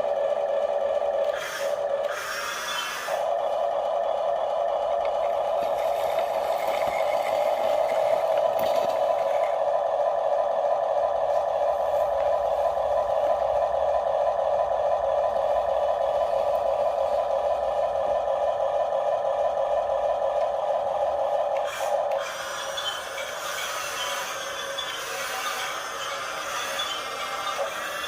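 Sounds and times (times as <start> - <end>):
toy gear motor whining: 1.2 - 3.5, 5.0 - 9.6, 21.6 - 28.0.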